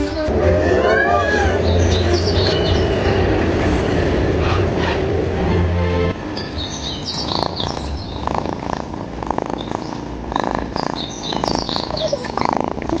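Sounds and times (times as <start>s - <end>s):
cat purring: 6.8s - 13.0s.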